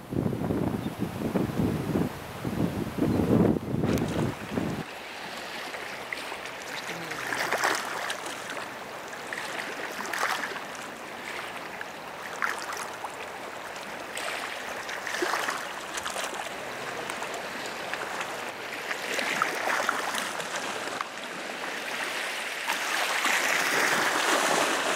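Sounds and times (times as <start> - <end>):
small waves lapping at shore: 3.8 - 24.9.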